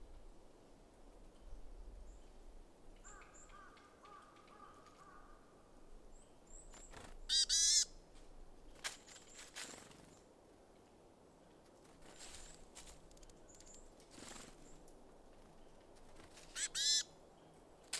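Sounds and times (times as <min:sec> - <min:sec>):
small birds chirping: 0:06.1 - 0:07.9, 0:13.0 - 0:17.9
harsh bird call: 0:16.6 - 0:17.1.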